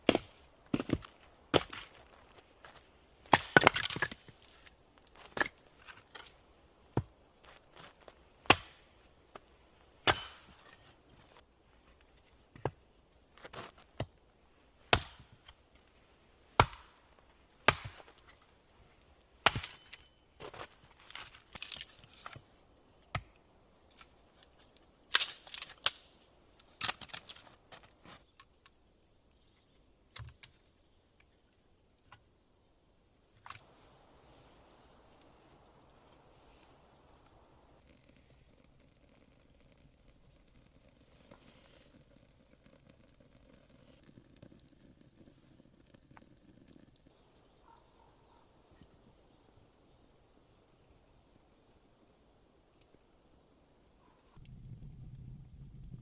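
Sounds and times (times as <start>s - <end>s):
wood being chopped: 0.0s - 2.0s, 3.3s - 4.3s, 8.5s - 8.9s, 10.1s - 10.8s, 14.9s - 15.6s, 16.6s - 17.0s, 17.7s - 18.3s, 19.4s - 21.9s.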